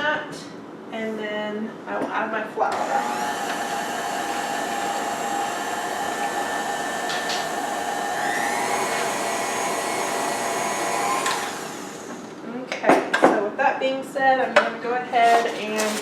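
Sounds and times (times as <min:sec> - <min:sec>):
electric mixer motor whine: 0:02.8 - 0:12.4.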